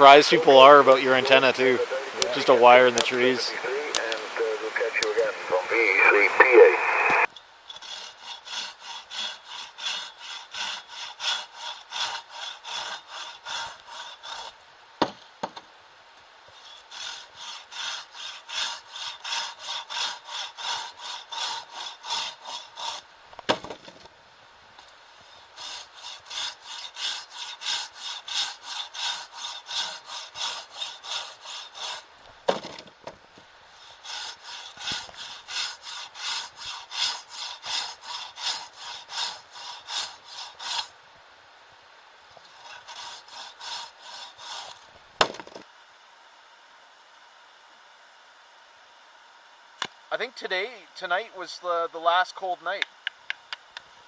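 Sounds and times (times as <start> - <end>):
hand saw cutting wood: 7.7 - 14.6, 16.5 - 24.0, 25.1 - 32.8, 33.8 - 40.9, 42.4 - 45.6.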